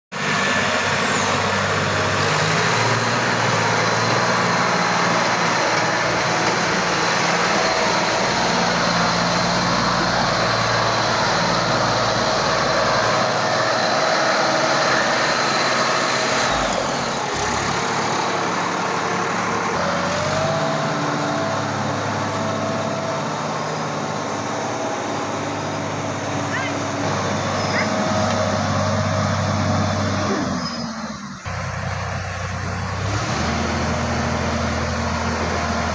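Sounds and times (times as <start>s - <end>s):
tractor diesel engine running: 0.1s - 35.9s.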